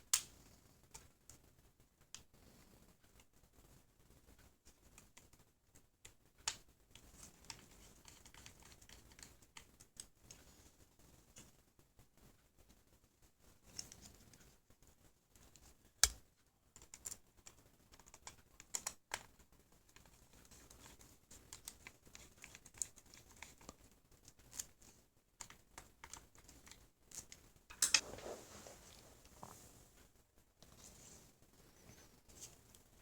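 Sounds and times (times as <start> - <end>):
light clicks and taps: 13.5 - 28.0.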